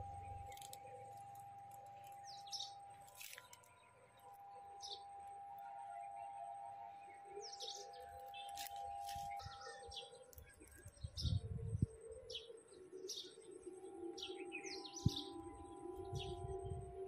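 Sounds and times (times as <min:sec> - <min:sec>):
low rumble on microphone: 0:00.0 - 0:01.8
faint steady tone: 0:00.0 - 0:17.0
small birds chirping: 0:00.0 - 0:17.0.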